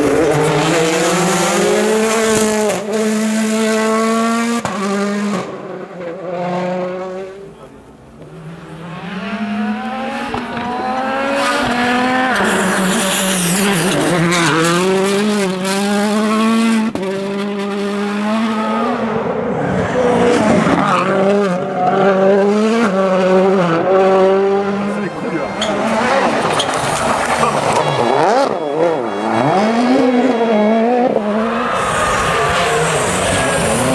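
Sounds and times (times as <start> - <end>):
rally car engine revving: 0.0 - 33.9.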